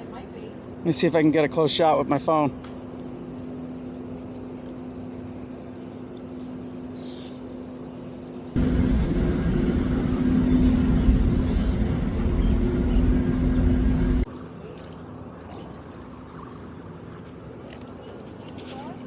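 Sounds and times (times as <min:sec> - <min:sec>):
low mechanical hum: 0:00.0 - 0:19.0
rush of rumbling noise: 0:08.6 - 0:14.3.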